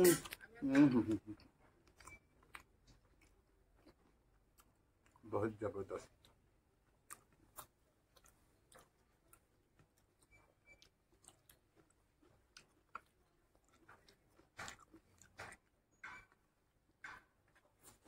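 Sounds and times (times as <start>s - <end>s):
chewing mouth clicks: 1.4s - 5.3s, 6.0s - 16.5s.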